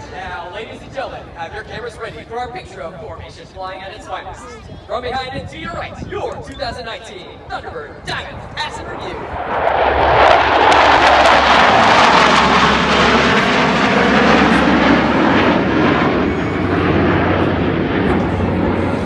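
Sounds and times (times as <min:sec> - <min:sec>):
jets roaring past: 0:07.3 - 0:19.0.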